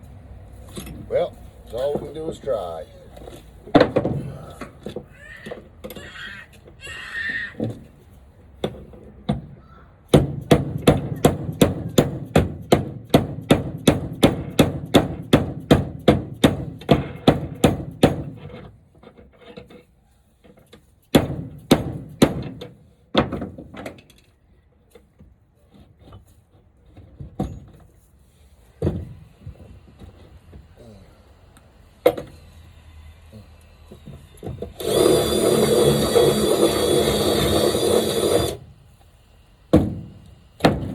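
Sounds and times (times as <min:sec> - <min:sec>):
hammer striking wood: 0:10.1 - 0:18.4, 0:21.1 - 0:23.6, 0:39.7 - 0:40.9.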